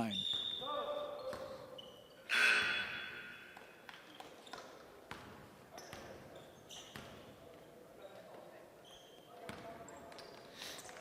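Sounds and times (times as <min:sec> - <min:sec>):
loud ringing shoe squeak: 0:01.7 - 0:03.5.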